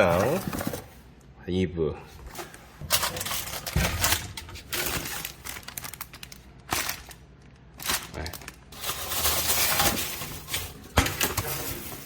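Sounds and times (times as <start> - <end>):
packaging crinkling and rustling: 2.4 - 12.0.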